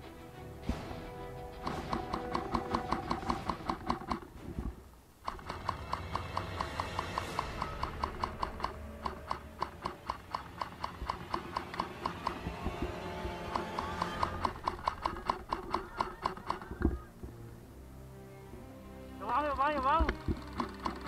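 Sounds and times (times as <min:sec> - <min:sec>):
music with fast ticking beat: 0:01.1 - 0:04.2, 0:05.3 - 0:16.9, 0:19.3 - 0:21.0.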